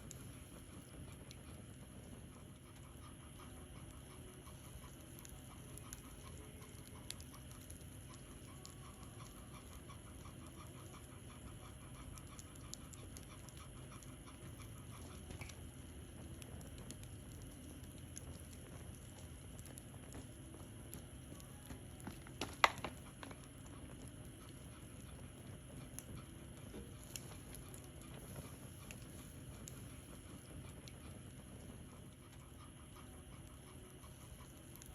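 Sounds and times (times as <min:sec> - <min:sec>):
bonfire crackling and popping: 0:00.0 - 0:34.9
dog panting: 0:00.0 - 0:34.9.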